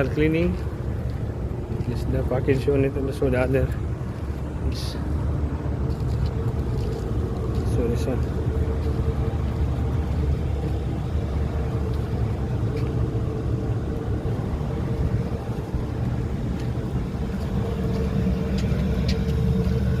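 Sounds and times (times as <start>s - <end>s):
air conditioner droning: 0.0s - 20.0s.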